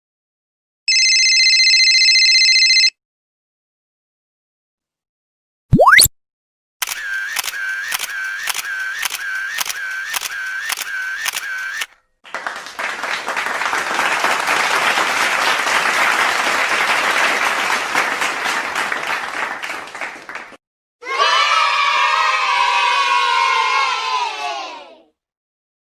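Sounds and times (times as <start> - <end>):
short clicking effect: 5.8 - 6.1
crowd applauding: 6.9 - 20.6
crowd cheering and shouting: 21.0 - 25.0.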